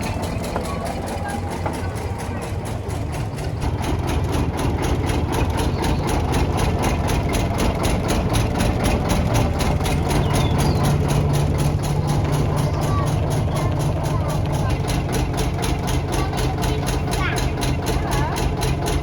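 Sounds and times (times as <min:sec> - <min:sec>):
engine idling slowly: 0:00.0 - 0:19.0.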